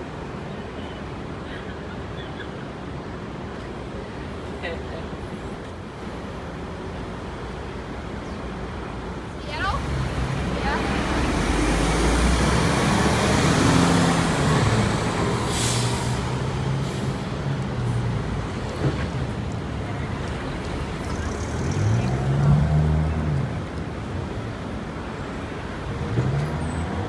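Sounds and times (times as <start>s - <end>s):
heavy street traffic: 0.0s - 27.0s
truck and bus engines: 0.0s - 27.0s
engine revving: 9.8s - 19.4s, 20.6s - 23.8s
loud air hiss: 15.2s - 17.3s.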